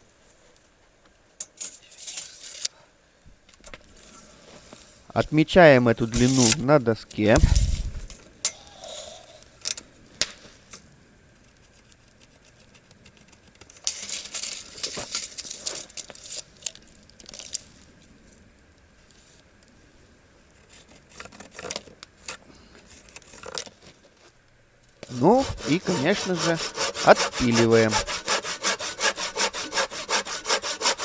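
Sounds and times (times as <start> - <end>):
scratchy rustling and knocking: 25.0 - 31.0.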